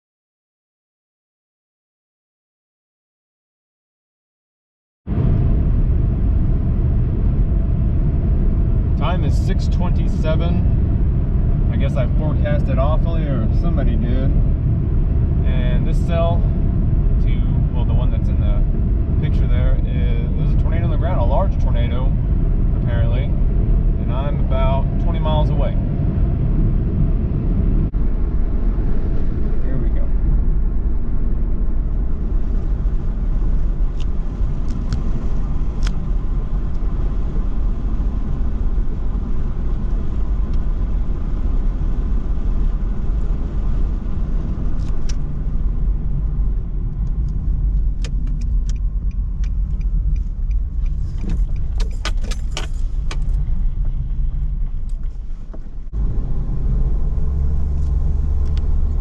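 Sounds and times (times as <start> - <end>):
car engine and road rumble: 5.1 - 59.0
sharp rattling clicks: 47.0 - 53.5.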